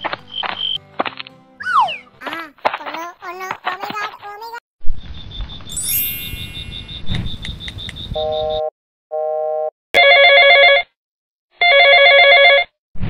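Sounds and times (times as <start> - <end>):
telephone ringtone: 10.0 - 10.9, 11.6 - 12.7.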